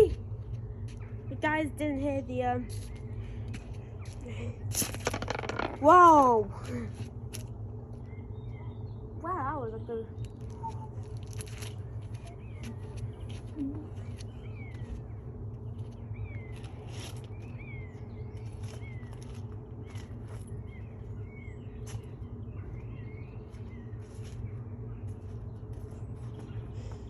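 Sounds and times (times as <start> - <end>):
low rumbling hum: 0.0 - 27.0
bird chirps: 8.0 - 11.2, 12.2 - 27.0.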